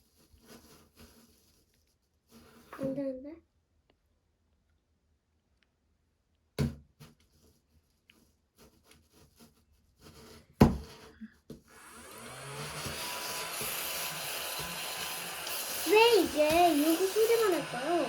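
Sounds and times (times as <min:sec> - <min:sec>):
small vacuum motor running: 0:11.7 - 0:18.0.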